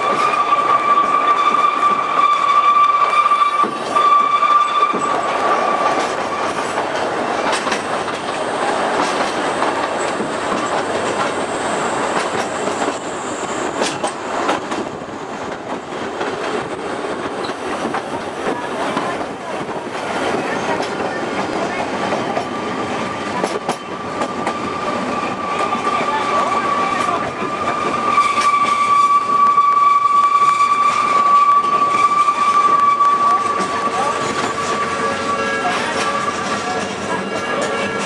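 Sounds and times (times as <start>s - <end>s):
train wheels squealing: 0.0s - 6.5s, 24.8s - 38.0s
train wheel clatter and rumble: 0.0s - 38.0s.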